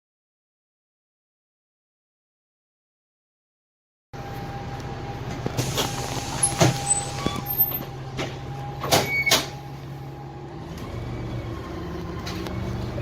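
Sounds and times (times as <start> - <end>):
bus diesel engine running: 4.2 - 13.0.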